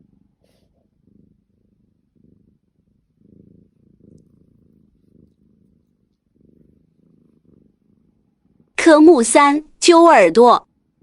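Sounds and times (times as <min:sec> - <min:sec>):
cat purring: 0:00.0 - 0:09.4, 0:10.5 - 0:11.0.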